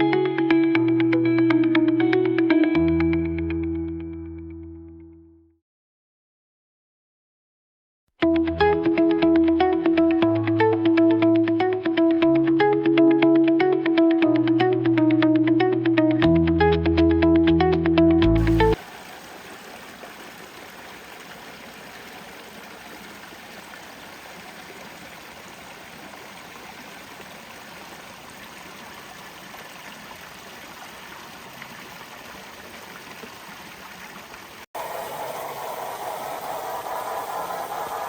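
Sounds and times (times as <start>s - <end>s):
water running in stream: 18.4s - 36.8s
loud rushing noise: 34.8s - 38.0s.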